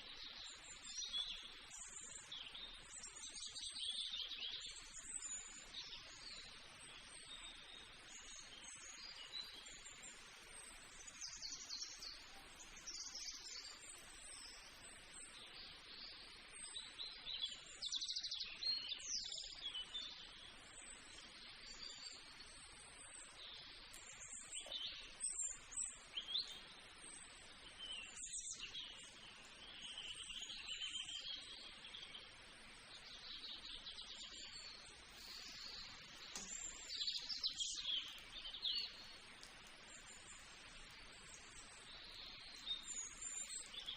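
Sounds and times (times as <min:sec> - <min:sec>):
faint steady hiss: 0:00.0 - 0:43.9
birds chirping and calling: 0:33.1 - 0:43.9.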